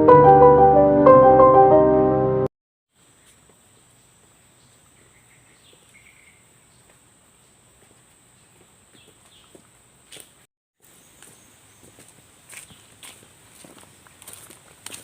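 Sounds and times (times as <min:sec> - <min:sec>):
piano music: 0:00.0 - 0:02.5
bird chirps: 0:04.6 - 0:06.9.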